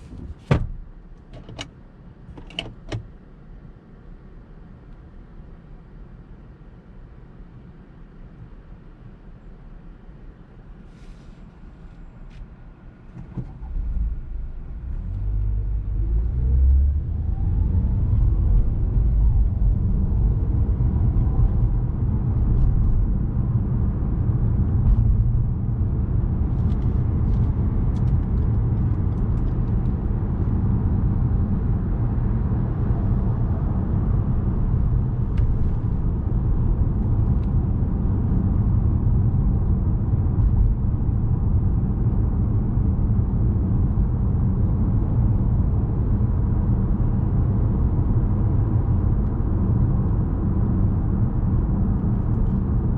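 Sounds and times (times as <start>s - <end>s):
road noise: 0.0s - 52.9s
car engine pulling away: 13.4s - 21.2s.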